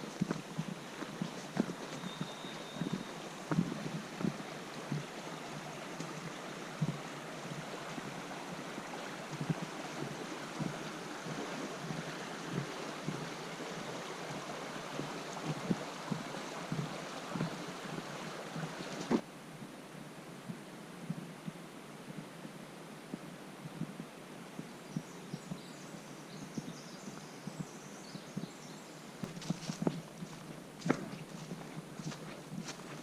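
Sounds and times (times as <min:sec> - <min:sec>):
flowing river water: 0:00.0 - 0:19.4, 0:24.2 - 0:33.0.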